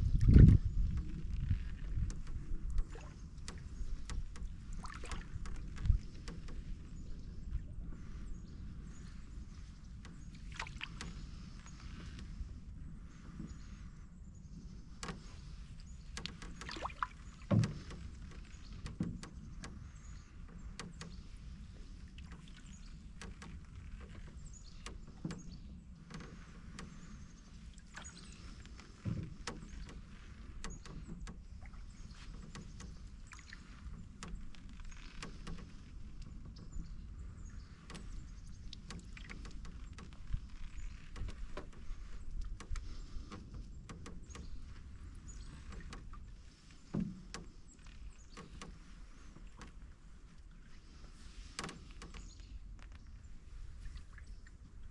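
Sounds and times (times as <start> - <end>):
canoe knocks and creaks: 0.0 - 54.9
paddle strokes in water: 0.0 - 54.9.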